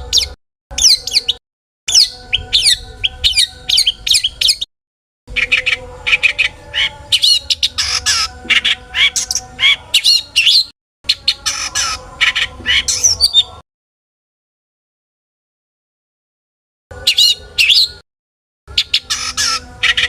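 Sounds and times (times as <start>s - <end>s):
shrike chattering song: 0.0s - 4.7s, 5.3s - 13.6s, 18.7s - 20.0s.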